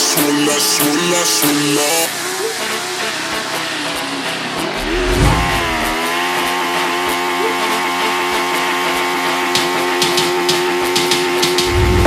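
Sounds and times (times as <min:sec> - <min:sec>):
motorcycle engine at high revs: 0:02.4 - 0:12.0.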